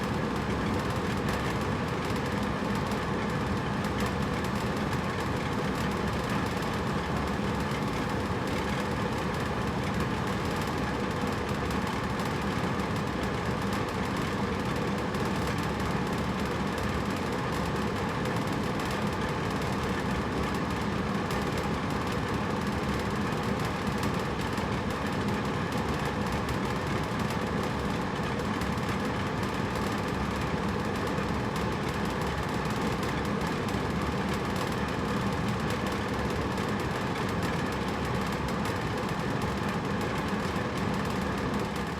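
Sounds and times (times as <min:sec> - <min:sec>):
air conditioner running: 0:00.0 - 0:41.9.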